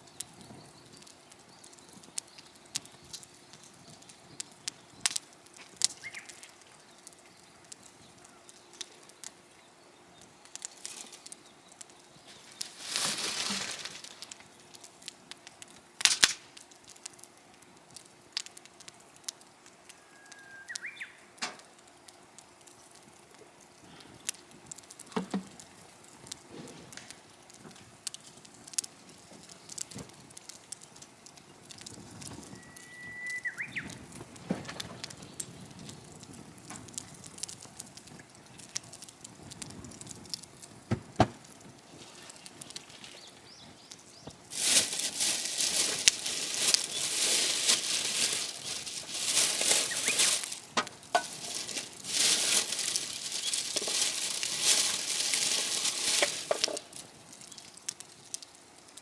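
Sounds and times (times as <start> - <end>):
campfire crackling and popping: 0.0 - 59.0
high whistle-like calls: 20.0 - 21.1, 32.5 - 33.9.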